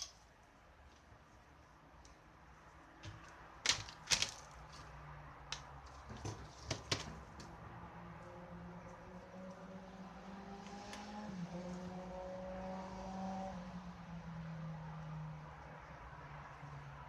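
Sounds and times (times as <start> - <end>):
sharp clicks and knocks: 3.0 - 4.9, 5.5 - 7.5.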